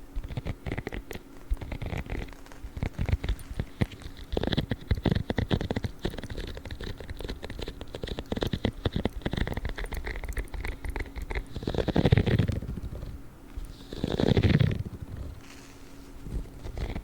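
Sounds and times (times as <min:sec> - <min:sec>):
spiky gloves scratching: 0:00.0 - 0:17.0.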